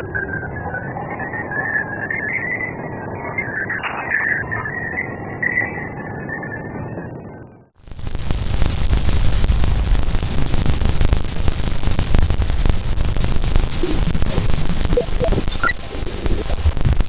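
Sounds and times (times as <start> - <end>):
low rumble: 7.1 - 17.0
crackling static: 7.7 - 17.0.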